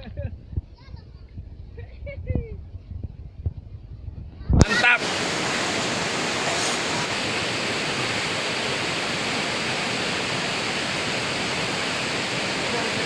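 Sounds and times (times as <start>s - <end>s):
river water rushing: 4.6s - 13.0s.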